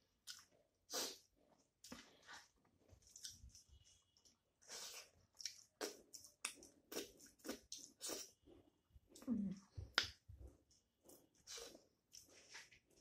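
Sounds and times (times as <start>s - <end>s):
wet chewing smacks and clicks: 5.3s - 8.3s.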